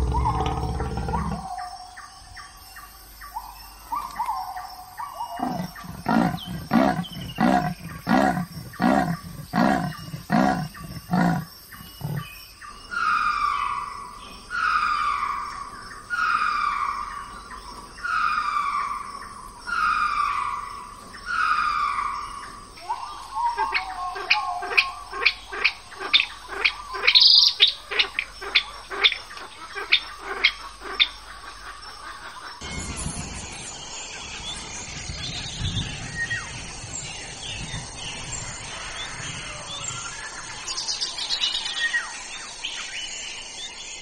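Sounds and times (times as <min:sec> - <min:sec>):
animal deep roar: 0:00.0 - 0:01.7, 0:05.4 - 0:12.3.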